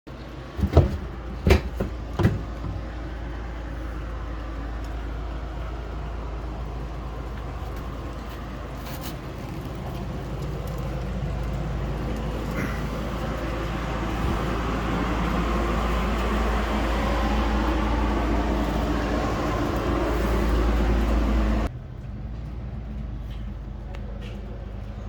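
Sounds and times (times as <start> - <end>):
low outdoor rumble: 0.1 - 25.0
sharp knocks: 0.5 - 3.0.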